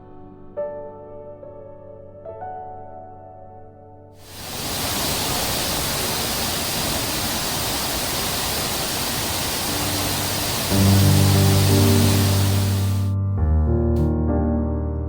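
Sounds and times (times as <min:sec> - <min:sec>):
soft piano music: 0:00.0 - 0:04.2, 0:09.7 - 0:15.0
waterfall rushing: 0:04.2 - 0:13.1.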